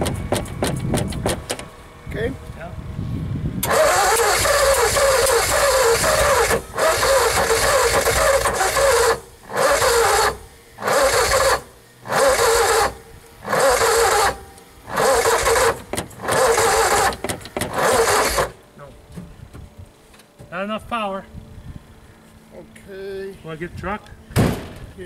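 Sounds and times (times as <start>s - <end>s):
car starter cranking engine: 3.6s - 18.6s.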